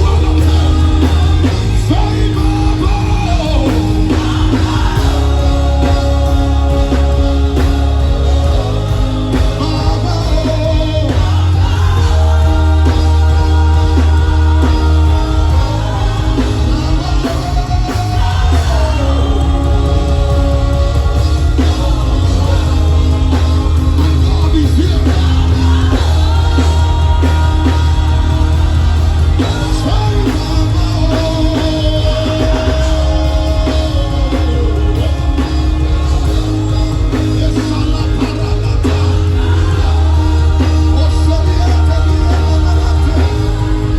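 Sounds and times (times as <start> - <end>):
band with heavy bass: 0.0 - 43.9.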